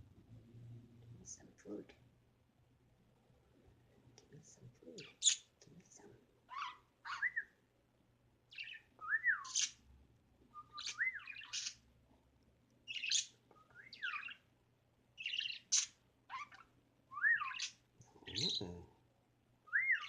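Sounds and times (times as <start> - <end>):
pet bird chirping and whistling: 6.5 - 7.5, 8.5 - 9.8, 10.6 - 11.8, 12.9 - 14.4, 15.2 - 18.6, 19.7 - 20.0.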